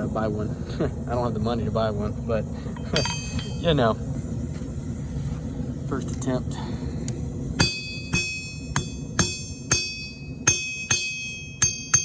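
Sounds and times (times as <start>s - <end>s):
hammer striking iron: 2.9s - 3.7s, 7.6s - 12.0s.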